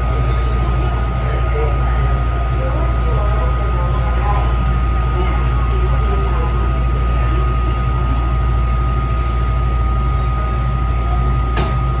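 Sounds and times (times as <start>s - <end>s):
metro train rumble: 0.0s - 12.0s.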